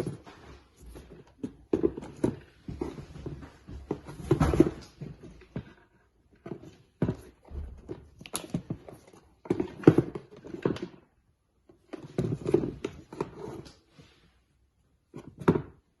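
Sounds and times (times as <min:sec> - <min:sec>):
sneakers being handled: 0:00.0 - 0:05.8.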